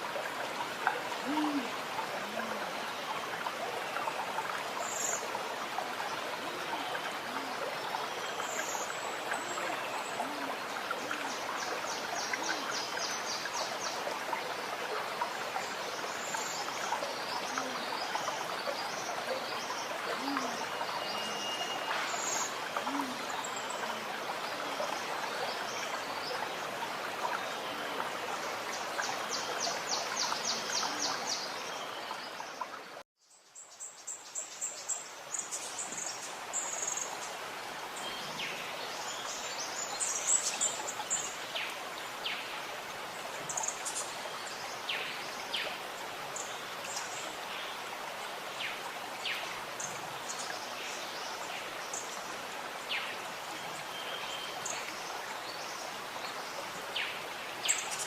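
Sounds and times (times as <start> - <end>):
running water gurgling: 0.0 - 58.0.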